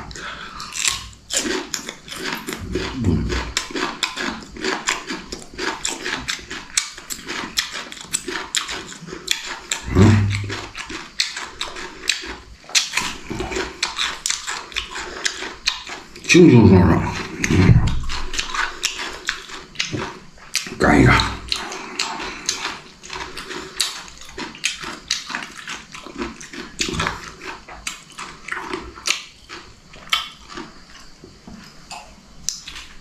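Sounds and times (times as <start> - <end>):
wet crunching while chewing: 0.0 - 33.0
mouth smacking: 0.1 - 4.4, 7.3 - 23.9.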